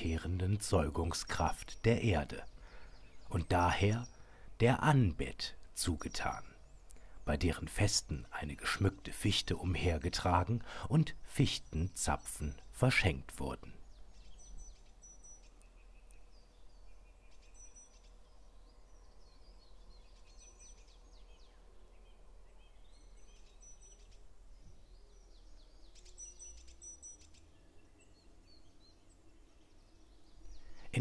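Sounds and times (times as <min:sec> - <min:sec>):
small birds calling: 0:00.0 - 0:31.0.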